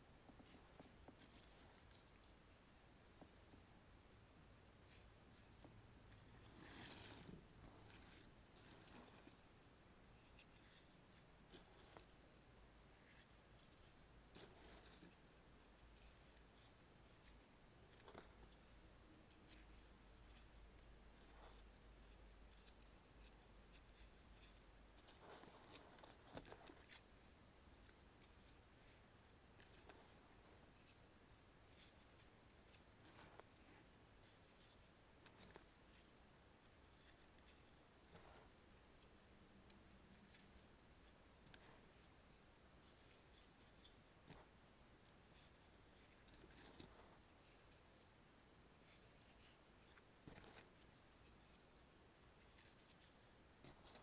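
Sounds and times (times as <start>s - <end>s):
paper rustling and scraping: 4.8s - 9.4s, 45.3s - 51.6s.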